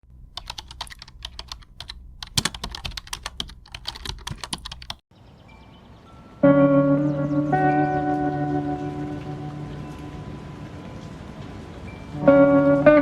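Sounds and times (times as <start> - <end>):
keyboard typing clicks: 0.3 - 5.0.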